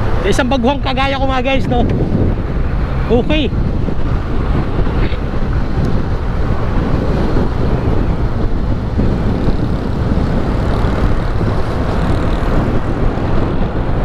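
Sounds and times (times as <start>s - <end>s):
wind rushing over microphone: 0.0s - 14.0s
motorcycle engine running: 3.7s - 13.5s.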